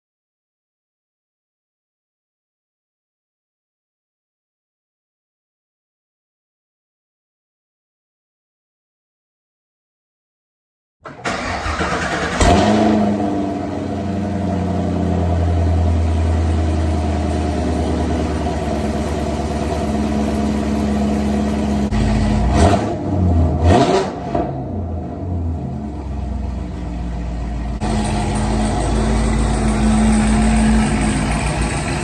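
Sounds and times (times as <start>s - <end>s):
car engine starting and idling: 11.0s - 32.0s
car engine revving: 11.1s - 32.0s.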